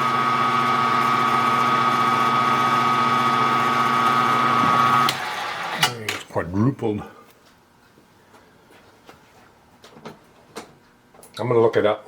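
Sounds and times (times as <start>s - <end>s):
machine tool motor whining: 0.0s - 5.9s.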